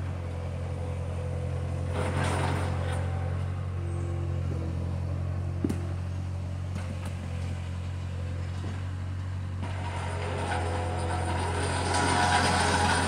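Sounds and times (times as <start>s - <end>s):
engine running with low drone: 0.0s - 13.0s
machine clattering: 9.6s - 13.0s.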